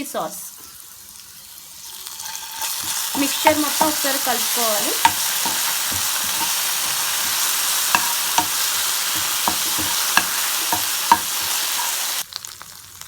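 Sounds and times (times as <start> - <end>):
food sizzling in oil: 0.0 - 13.0
spoon knocking against pan: 2.6 - 12.0.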